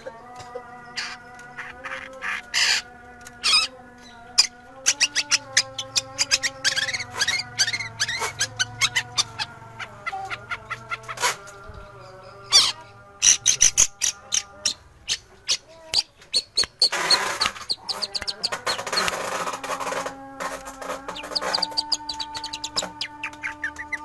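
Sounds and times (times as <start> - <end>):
bird singing sharp chirps: 21.1 - 24.0.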